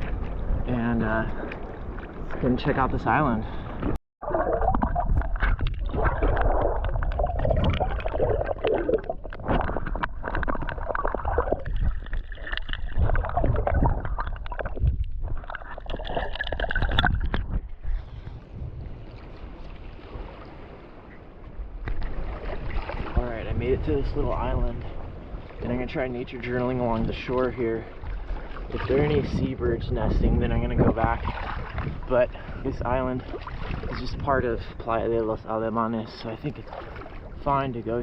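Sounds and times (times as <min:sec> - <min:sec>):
water splashing from swimming: 0:03.8 - 0:18.4, 0:21.8 - 0:23.2, 0:27.8 - 0:29.2, 0:31.1 - 0:32.6, 0:33.2 - 0:34.2, 0:36.6 - 0:37.5.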